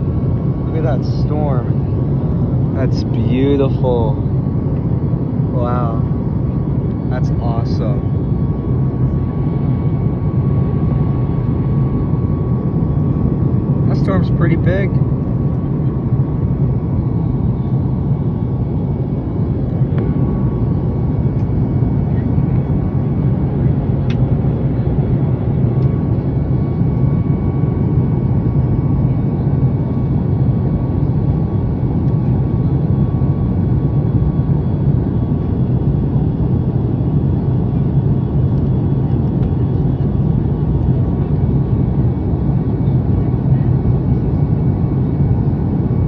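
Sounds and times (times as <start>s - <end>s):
airplane cabin drone: 0.0s - 46.0s
low hum: 0.0s - 46.0s.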